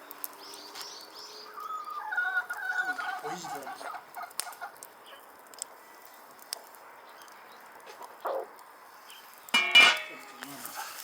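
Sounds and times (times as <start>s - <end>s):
chicken clucking: 1.6s - 4.8s.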